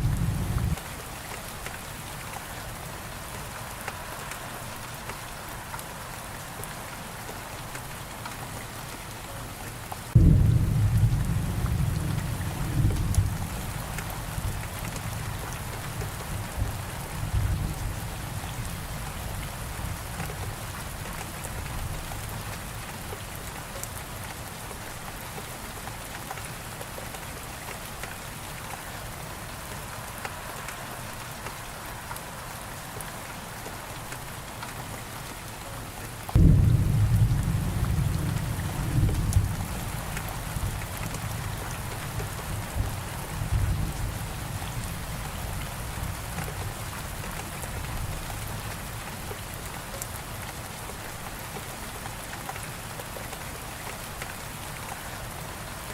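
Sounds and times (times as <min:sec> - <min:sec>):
thunder rumbling: 0:00.0 - 0:00.8, 0:10.1 - 0:20.1, 0:36.4 - 0:45.1
steady rain falling: 0:00.0 - 0:55.9.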